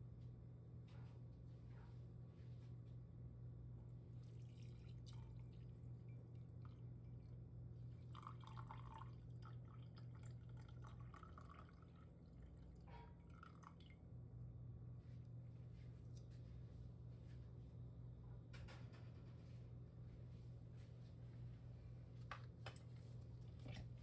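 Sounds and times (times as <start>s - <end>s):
steady low hum: 0.0s - 24.0s
liquid dripping and trickling: 4.2s - 6.8s, 8.1s - 14.0s.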